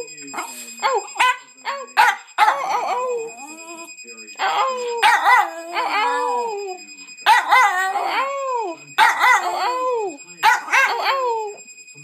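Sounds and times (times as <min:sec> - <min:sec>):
alarm clock going off: 0:00.0 - 0:12.0
dog howling: 0:00.4 - 0:11.6.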